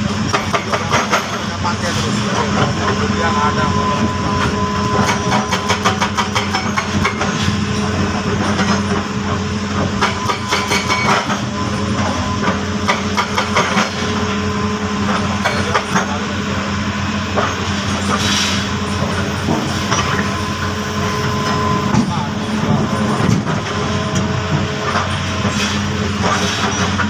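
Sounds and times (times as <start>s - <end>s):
diesel excavator engine running: 0.0s - 27.0s
metallic clanks and knocks: 9.9s - 11.4s.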